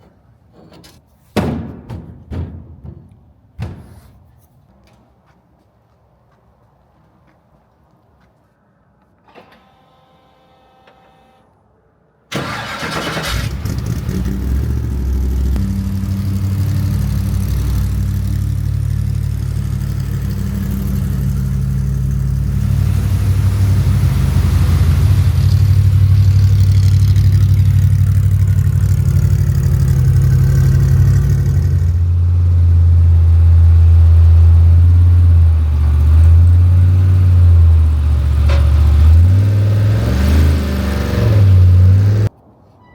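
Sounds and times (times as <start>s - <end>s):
truck engine starting and running: 0.0s - 4.3s, 12.3s - 42.3s.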